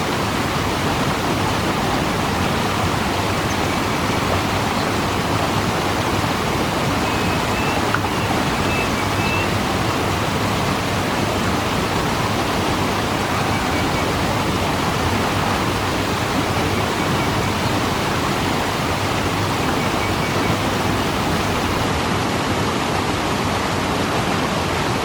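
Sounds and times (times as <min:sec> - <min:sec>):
waterfall rushing: 0:00.0 - 0:22.3.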